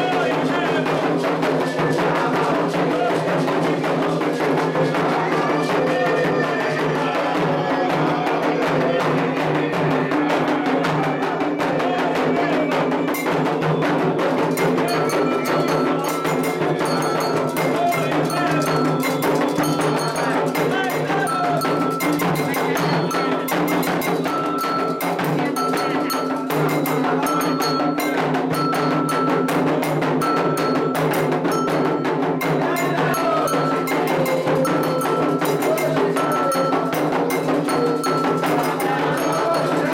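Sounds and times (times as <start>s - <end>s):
hand drums beating a rhythm: 0.0s - 39.9s
voices singing: 0.0s - 39.9s
metal bell ringing high note: 14.8s - 39.9s.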